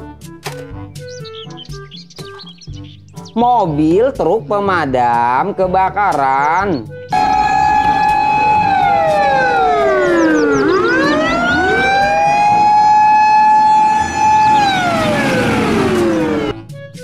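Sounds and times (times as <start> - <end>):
fire engine siren wailing: 7.1 - 16.6.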